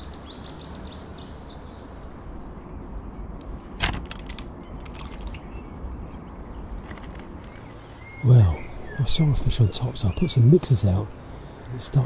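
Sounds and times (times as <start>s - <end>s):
songbird singing high notes: 0.0s - 2.7s, 7.5s - 12.0s.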